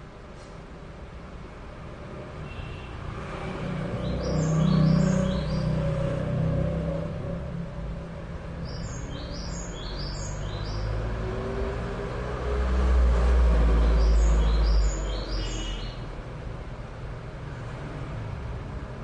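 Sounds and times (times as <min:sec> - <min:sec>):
small bird chirping: 0:04.0 - 0:05.8, 0:08.6 - 0:11.0, 0:13.8 - 0:16.0.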